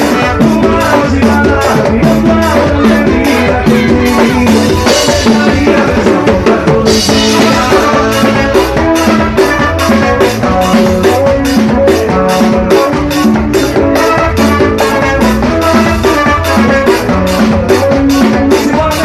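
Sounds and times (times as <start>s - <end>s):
band playing dance music: 0.0s - 19.0s
drum kit beat: 0.0s - 19.0s.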